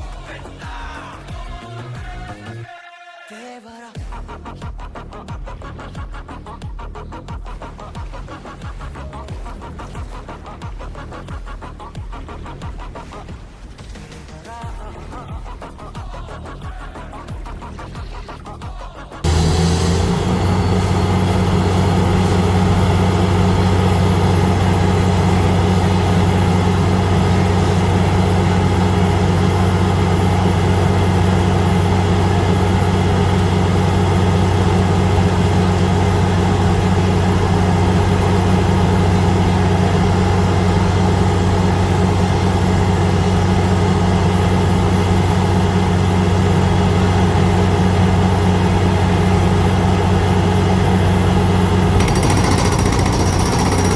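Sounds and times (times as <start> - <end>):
heavy diesel engine running: 19.2 - 53.9.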